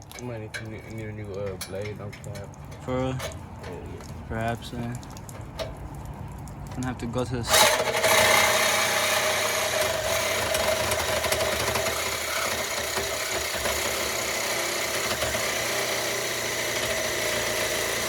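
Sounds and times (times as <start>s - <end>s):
power saw cutting metal pipe: 7.5s - 18.0s.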